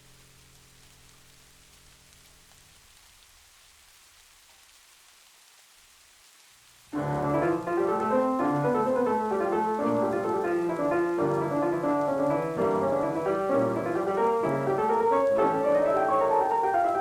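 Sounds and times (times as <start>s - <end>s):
faint rain: 0.0s - 17.0s
classical piano music: 6.9s - 17.0s.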